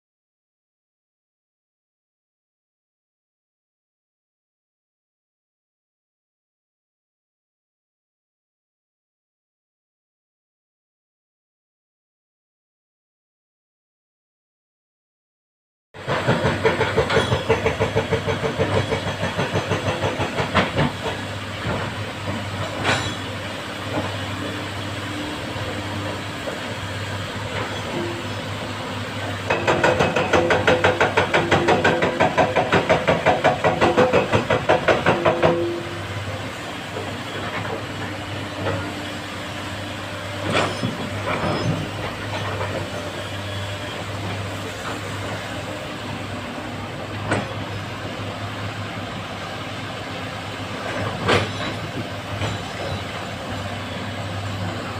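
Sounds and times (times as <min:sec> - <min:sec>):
excavator diesel engines working: 0:16.0 - 0:54.9.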